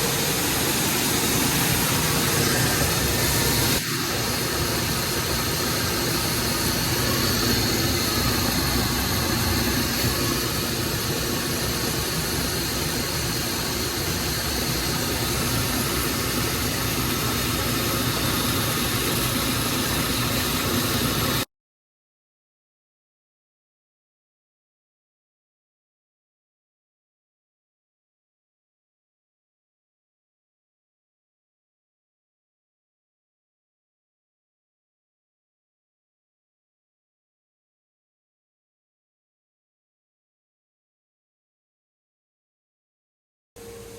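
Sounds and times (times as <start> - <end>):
grain machinery running: 0.0 - 21.4.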